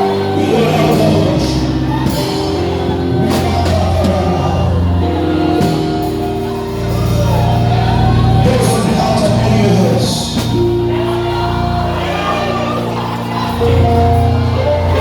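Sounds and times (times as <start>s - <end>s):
bass line: 0.0s - 15.0s
organ chords: 0.0s - 15.0s
drums with cymbal hits: 10.3s - 11.0s.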